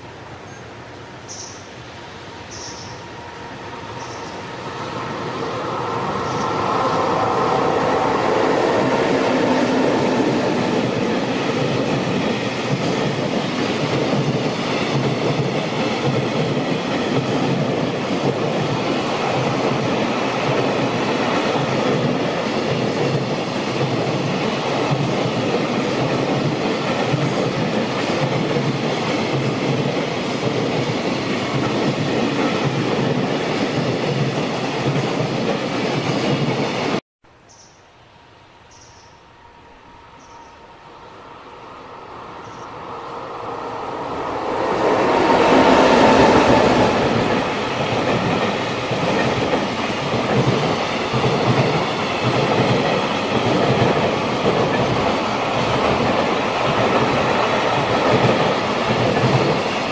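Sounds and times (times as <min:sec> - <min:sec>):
electric locomotive passing: 0:00.0 - 0:37.0, 0:37.9 - 0:59.9.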